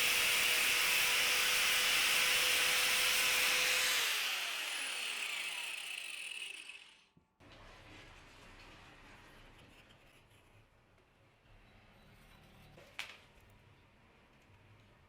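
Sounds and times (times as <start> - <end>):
power tool cutting wood: 0.0 - 7.1
motor winding down: 2.5 - 7.1.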